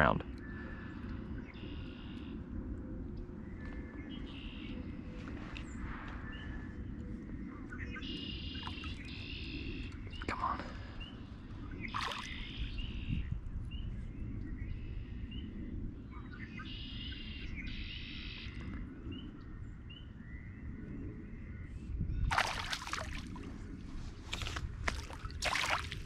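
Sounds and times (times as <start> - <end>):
wind rumble on microphone: 0.0 - 26.0
birds chirping: 3.4 - 20.9.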